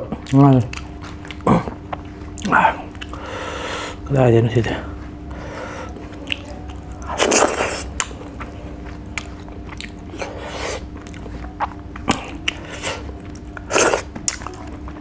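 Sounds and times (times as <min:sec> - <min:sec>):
wet chewing and mouth smacks: 0:00.2 - 0:03.2, 0:06.1 - 0:14.7.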